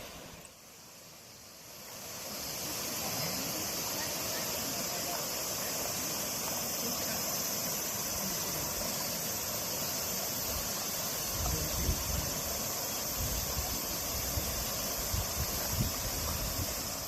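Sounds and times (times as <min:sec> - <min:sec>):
outdoor hiss: 0:00.0 - 0:17.0
wind gusts on microphone: 0:11.3 - 0:17.0.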